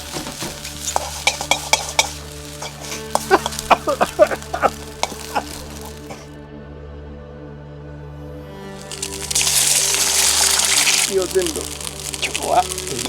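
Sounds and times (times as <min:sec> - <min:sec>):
food sizzling: 0:00.0 - 0:06.3, 0:08.7 - 0:13.0
metal utensil scraping a wok: 0:00.0 - 0:06.3, 0:08.8 - 0:13.0.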